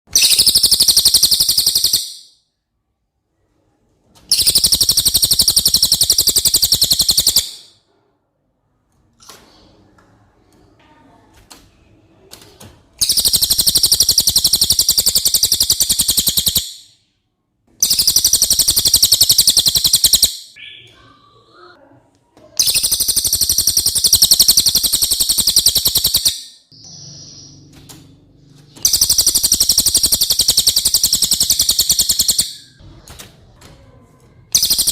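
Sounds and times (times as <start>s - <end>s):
bird chattering trills: 0.1s - 2.3s, 4.3s - 7.7s, 13.0s - 16.8s, 17.8s - 21.7s, 22.6s - 27.7s, 28.8s - 32.8s, 34.5s - 34.9s.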